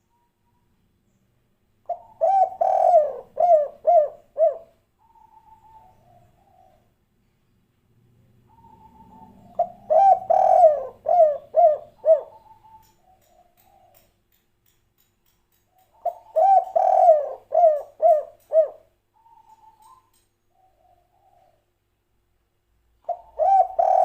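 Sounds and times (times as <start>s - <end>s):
dove cooing: 1.9s - 6.9s, 8.4s - 14.0s, 15.9s - 21.7s, 23.0s - 24.0s.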